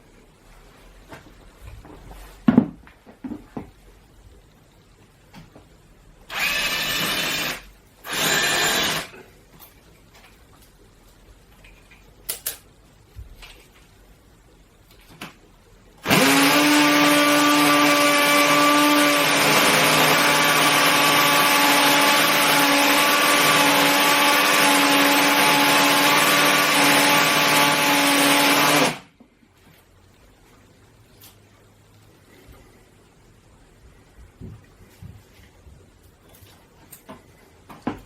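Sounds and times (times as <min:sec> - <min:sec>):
hammer drill boring into concrete: 0:06.3 - 0:09.2, 0:16.0 - 0:29.0.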